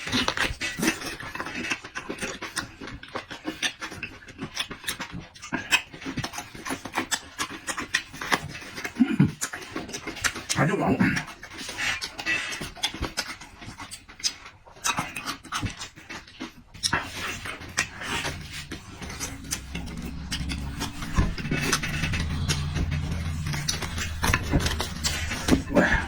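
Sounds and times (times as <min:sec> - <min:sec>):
low steady hum: 0:16.8 - 0:26.0.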